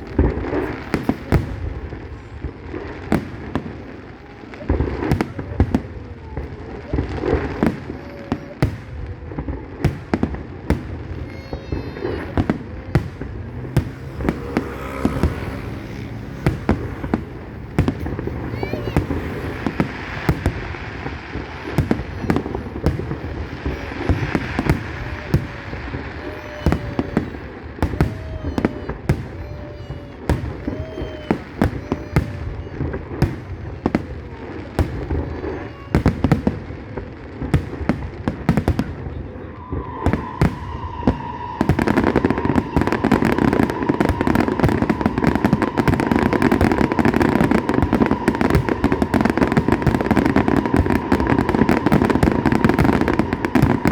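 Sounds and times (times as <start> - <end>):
crackling fireworks bursts: 0.0 - 53.9
fireworks bangs: 0.0 - 53.9
fireworks whistling: 0.0 - 53.9.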